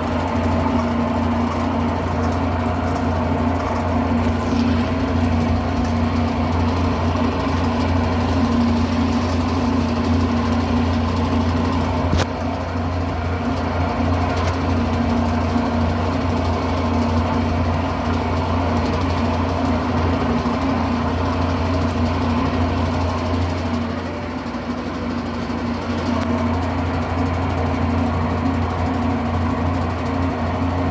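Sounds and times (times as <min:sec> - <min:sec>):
washing machine spinning: 0:00.0 - 0:30.9.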